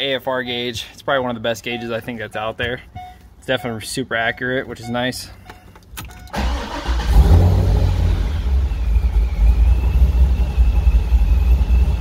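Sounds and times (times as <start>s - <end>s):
car engine idling: 6.3s - 12.0s.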